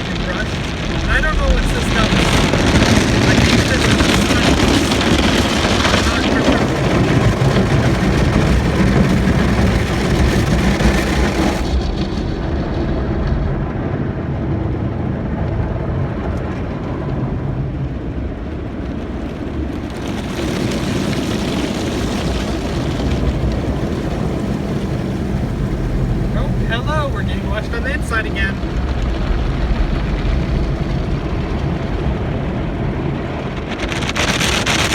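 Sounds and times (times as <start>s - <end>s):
car wash water spray and brushes: 0.0s - 12.1s, 19.6s - 29.0s
low rumble: 0.0s - 19.9s, 21.0s - 34.9s.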